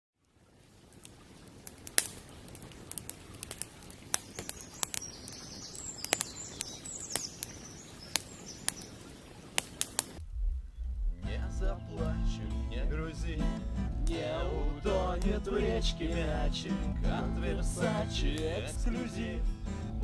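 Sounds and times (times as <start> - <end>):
campfire crackling and popping: 0.2 - 10.4, 14.0 - 19.5
bird chirping: 4.2 - 11.0.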